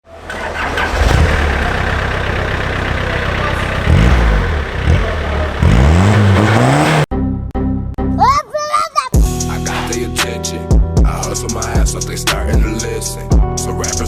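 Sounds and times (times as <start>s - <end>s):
diesel engine revving: 0.0s - 7.1s.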